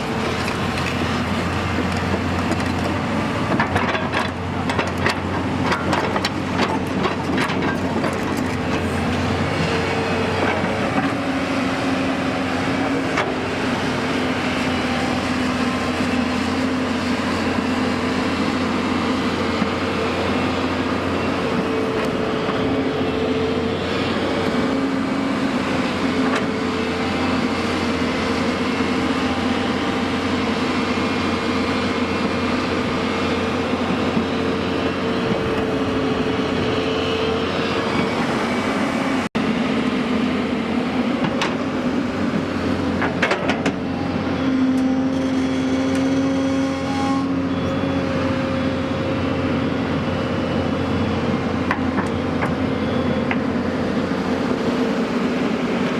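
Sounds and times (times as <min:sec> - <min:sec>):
constant whine: 0:00.0 - 0:55.9
diesel engine running: 0:00.0 - 0:55.9.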